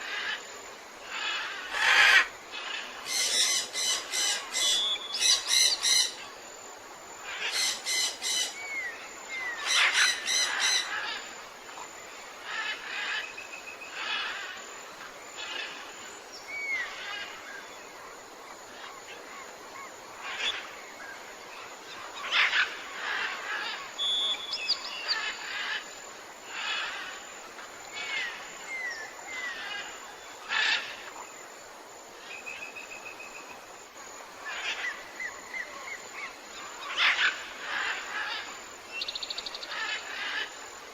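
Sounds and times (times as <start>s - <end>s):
steady background hiss: 0.0s - 40.9s
loud bird calls: 1.1s - 6.2s, 7.3s - 11.2s.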